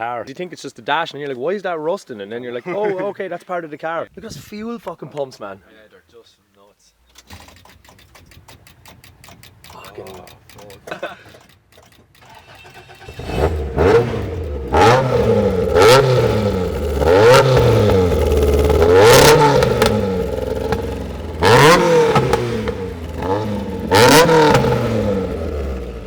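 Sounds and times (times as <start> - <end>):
car engine revving: 12.2 - 26.0.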